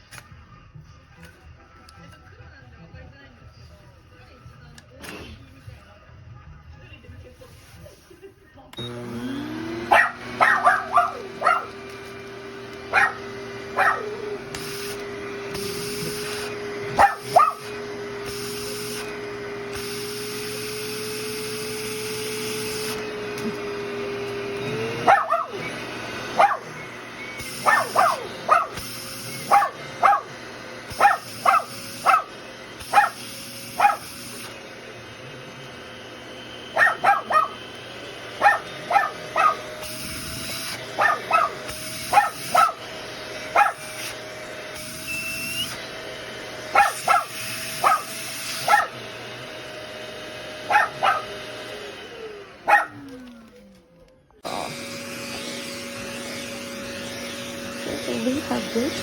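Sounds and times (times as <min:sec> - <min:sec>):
grooming vacuum humming: 0:07.0 - 0:59.0
dog barking: 0:09.8 - 0:11.8, 0:12.8 - 0:14.4, 0:16.9 - 0:17.8, 0:24.7 - 0:26.8, 0:27.6 - 0:34.2, 0:36.7 - 0:37.7, 0:38.3 - 0:39.8, 0:40.8 - 0:42.8, 0:43.5 - 0:44.0, 0:46.7 - 0:49.0, 0:50.6 - 0:51.5, 0:52.6 - 0:53.1.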